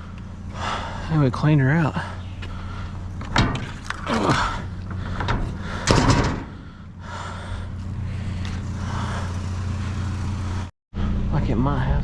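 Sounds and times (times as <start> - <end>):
truck engine idling: 0.0 - 11.3
knocks and bangs: 4.9 - 6.6.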